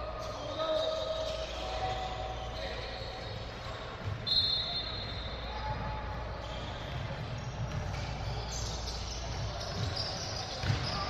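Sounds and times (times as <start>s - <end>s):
high-pitched shoe squeal: 0.2s - 11.0s
ball bouncing on hardwood: 10.6s - 11.0s.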